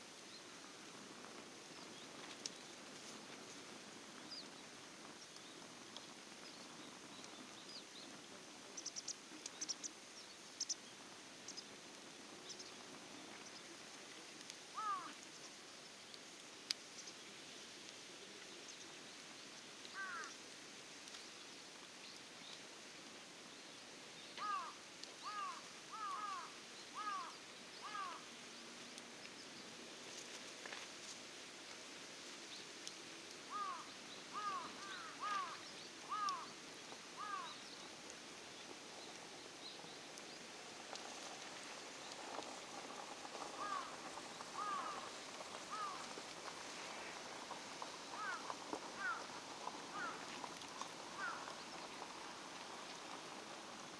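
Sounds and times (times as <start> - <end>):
crow cawing: 14.8 - 15.2, 20.0 - 20.3, 24.4 - 28.2, 33.5 - 36.5, 37.2 - 37.6, 43.6 - 43.9, 44.6 - 45.0, 45.7 - 46.0, 48.2 - 48.4, 49.0 - 49.2, 49.9 - 50.2, 51.2 - 51.4.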